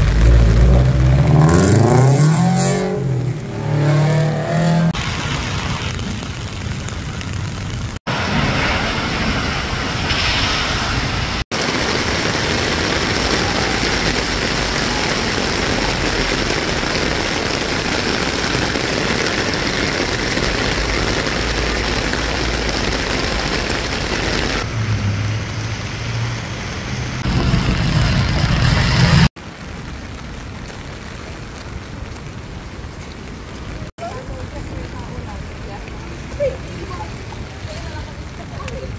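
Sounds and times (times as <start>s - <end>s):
heavy rain pouring: 0.0s - 38.9s
low rumble: 24.6s - 29.3s.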